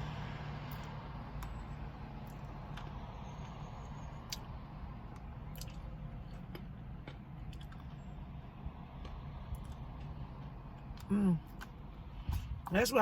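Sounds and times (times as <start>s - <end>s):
chewing: 5.1s - 11.8s.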